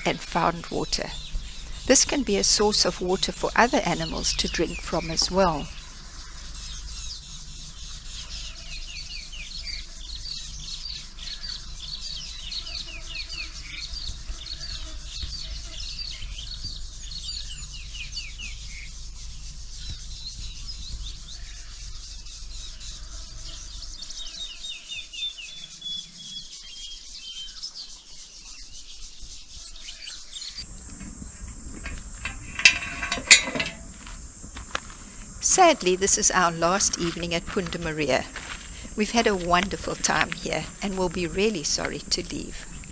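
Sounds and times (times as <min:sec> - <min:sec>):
wild birds chirping: 0:00.0 - 0:28.0, 0:29.6 - 0:42.9
steady high hiss: 0:30.6 - 0:42.9.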